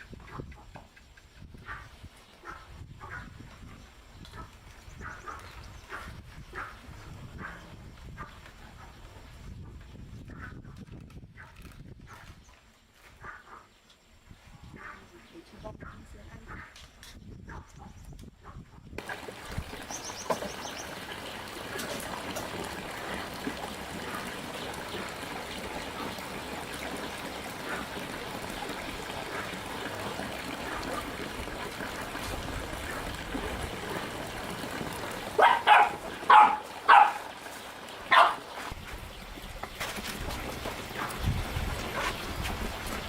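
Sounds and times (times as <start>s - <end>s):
trickle of running water: 19.0s - 43.0s
dog barking: 35.4s - 37.4s, 38.1s - 38.5s.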